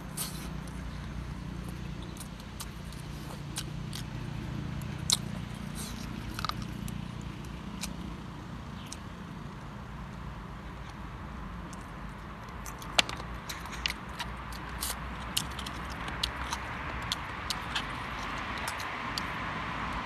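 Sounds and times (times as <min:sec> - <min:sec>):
person chewing and lip smacking: 0:00.0 - 0:09.7, 0:11.6 - 0:20.0.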